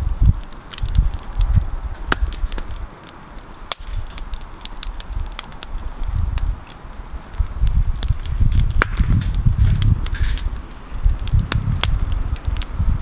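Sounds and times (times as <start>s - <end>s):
campfire crackling and popping: 0.0s - 13.0s
low rumble: 5.9s - 13.0s.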